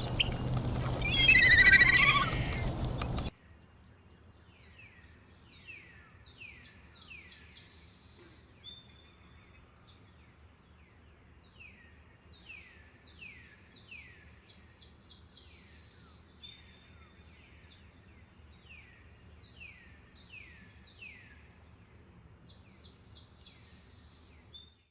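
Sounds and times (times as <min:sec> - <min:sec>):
bird singing whistled notes: 0:00.0 - 0:03.3.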